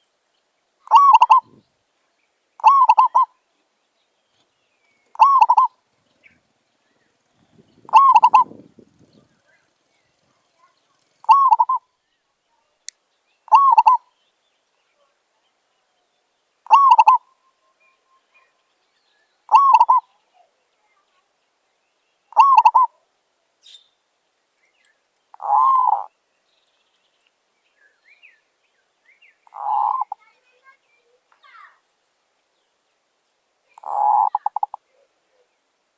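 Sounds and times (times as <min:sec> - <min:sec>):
dove cooing: 0:00.9 - 0:01.6, 0:02.6 - 0:03.3, 0:05.1 - 0:05.8, 0:07.9 - 0:08.6, 0:11.2 - 0:11.8, 0:13.5 - 0:14.0, 0:16.7 - 0:17.3, 0:19.5 - 0:20.1, 0:22.3 - 0:23.0, 0:25.4 - 0:26.1, 0:29.5 - 0:30.2, 0:33.8 - 0:35.5.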